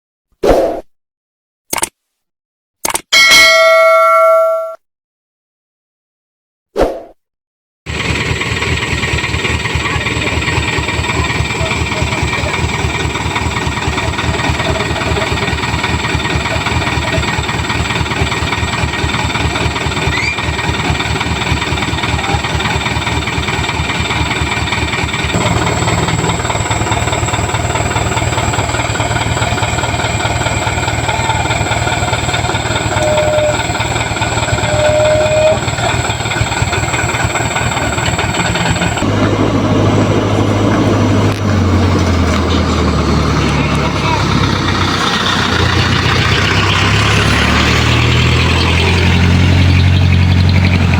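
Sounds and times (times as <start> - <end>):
diesel truck engine clattering: 7.9 - 50.9.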